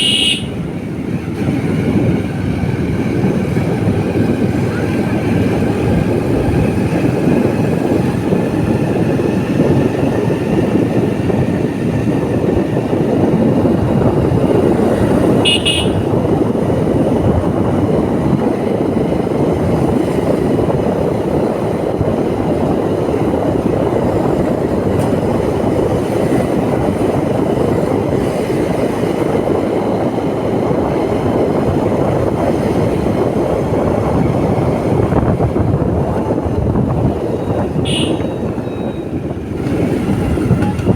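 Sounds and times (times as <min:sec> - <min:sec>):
motorbike horn toot: 0:00.0 - 0:00.6, 0:15.4 - 0:16.2, 0:37.3 - 0:39.2
motorbike engine and road noise: 0:00.0 - 0:40.9.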